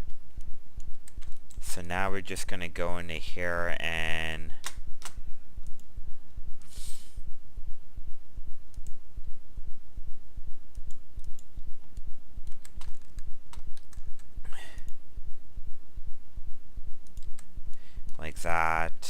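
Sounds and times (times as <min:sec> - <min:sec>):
low throbbing pulses: 0:04.8 - 0:12.5, 0:13.2 - 0:18.6
short hiss: 0:06.7 - 0:07.2.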